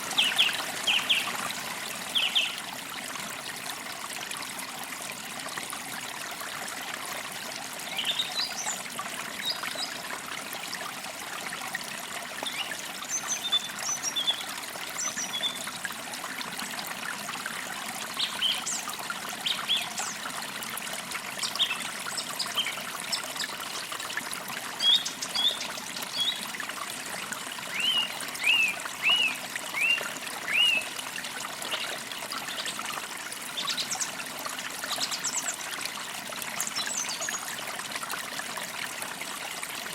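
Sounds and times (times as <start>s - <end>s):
creek trickling: 0.0s - 39.9s
birds chirping: 27.7s - 30.9s.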